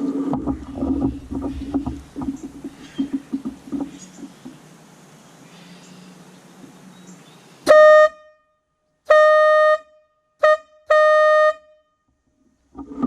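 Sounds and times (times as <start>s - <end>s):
train air horn blasts: 7.7s - 8.4s, 9.0s - 11.9s.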